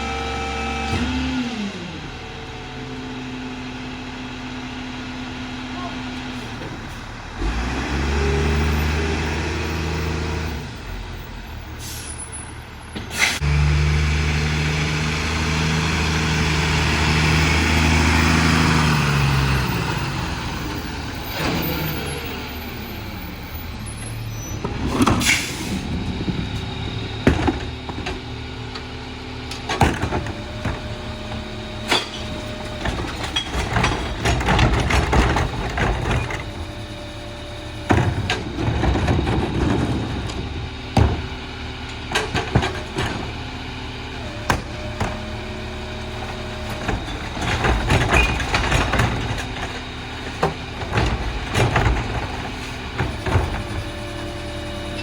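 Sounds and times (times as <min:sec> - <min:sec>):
diesel engine revving: 0:00.0 - 0:55.0
hydraulic packer running: 0:00.0 - 0:55.0
air brake hiss: 0:11.8 - 0:12.3, 0:13.1 - 0:13.4
knocks and clanks: 0:24.6 - 0:28.9, 0:29.5 - 0:36.8, 0:37.8 - 0:43.4, 0:46.1 - 0:54.1.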